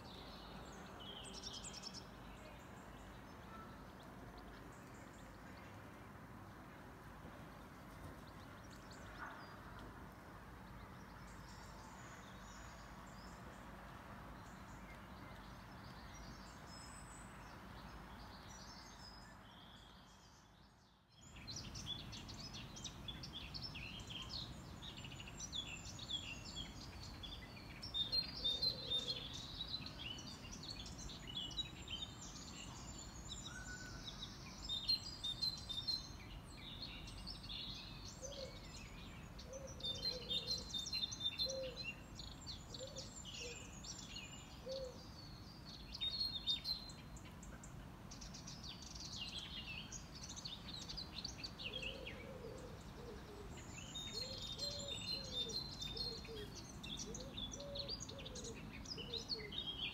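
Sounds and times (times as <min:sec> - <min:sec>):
outdoor background noise: 0:00.0 - 0:59.9
small birds chirping: 0:14.3 - 0:59.9.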